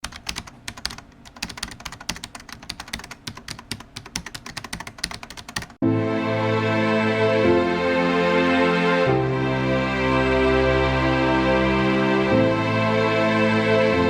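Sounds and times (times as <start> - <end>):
typing on computer keyboard: 0.0 - 5.8
music: 5.8 - 14.0.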